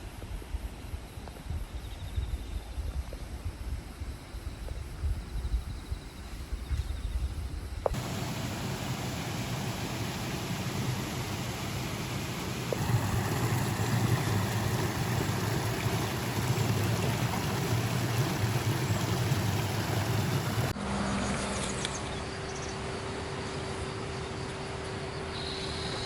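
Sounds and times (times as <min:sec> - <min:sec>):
vehicle running noise: 0:07.9 - 0:23.3.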